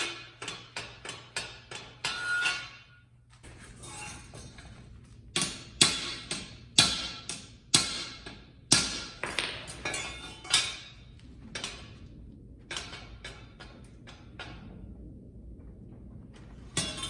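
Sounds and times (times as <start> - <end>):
hammer striking steel: 0.0 - 3.0, 5.4 - 11.0.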